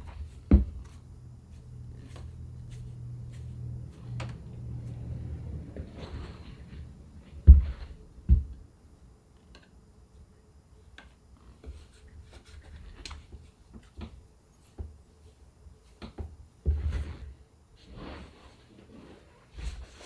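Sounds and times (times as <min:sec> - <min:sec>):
heavy thumps: 0:00.0 - 0:01.0, 0:05.6 - 0:08.7
faint steady hum: 0:00.0 - 0:20.0.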